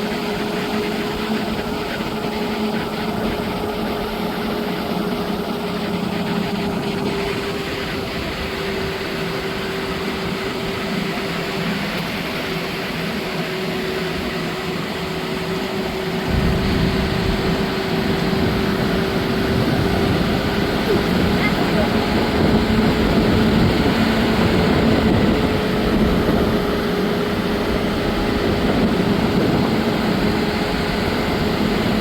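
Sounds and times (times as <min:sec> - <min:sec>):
vehicle engine humming: 0:00.0 - 0:32.0
low rumble: 0:16.2 - 0:21.4.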